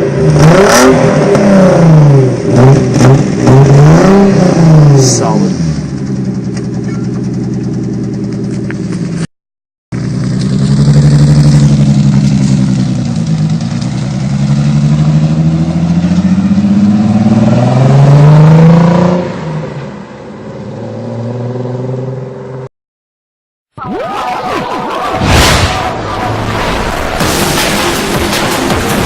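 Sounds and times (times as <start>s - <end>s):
car engine revving: 0.0s - 6.8s, 10.0s - 19.8s.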